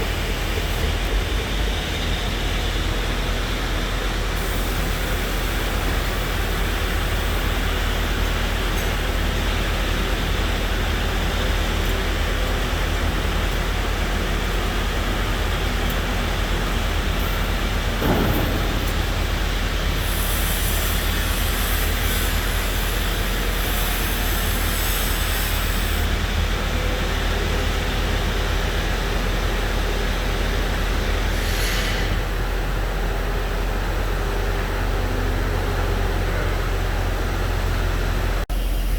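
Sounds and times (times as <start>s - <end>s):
machinery engine drone: 0.0s - 21.5s
machine clunk: 17.9s - 20.0s.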